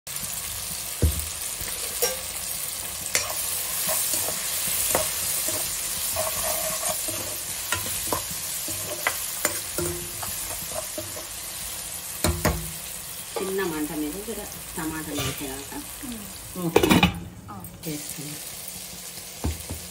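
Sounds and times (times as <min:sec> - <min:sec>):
vegetables sizzling in hot oil: 0:00.1 - 0:19.9
metal spatula scraping pan: 0:01.6 - 0:12.6, 0:15.0 - 0:15.7.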